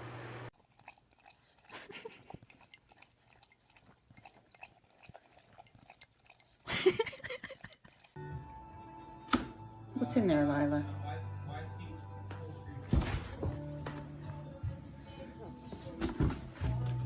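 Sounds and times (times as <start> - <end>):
animal chewing: 0.6 - 8.2.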